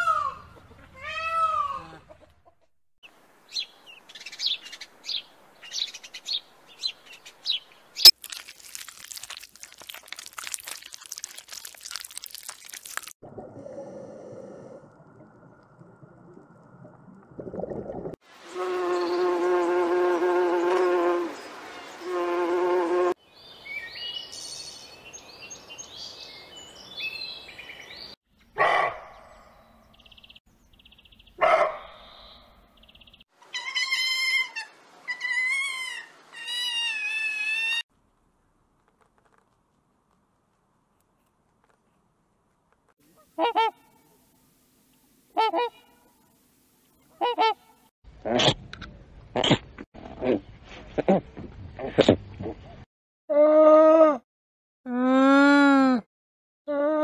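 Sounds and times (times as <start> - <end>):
insect buzzing: 18.4 - 21.4, 22.0 - 23.2.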